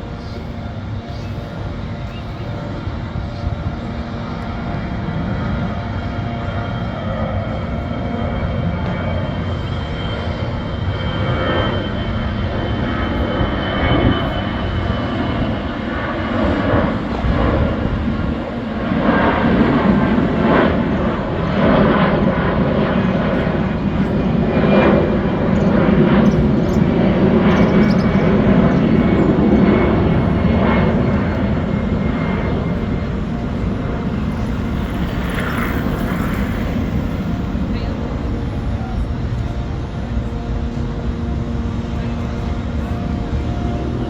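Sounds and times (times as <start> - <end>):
aircraft engine droning: 0.0 - 44.0.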